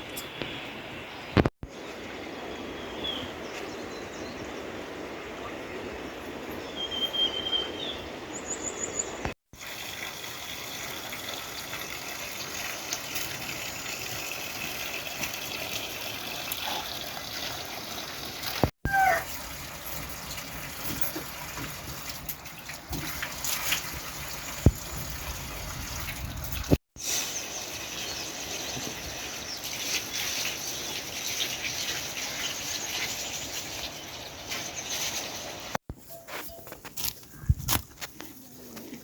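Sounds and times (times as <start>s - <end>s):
running water rushing: 9.6s - 35.8s.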